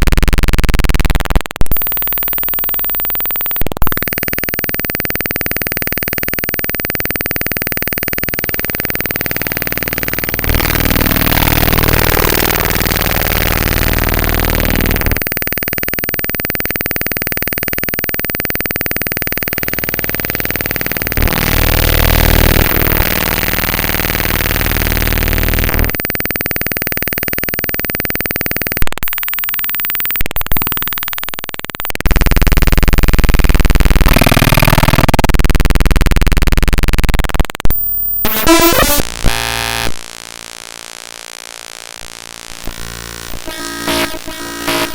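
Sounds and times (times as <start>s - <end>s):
sharp clicks: 0.2s - 38.4s
harsh digital hiss and buzz: 4.0s - 28.7s, 37.8s - 44.9s.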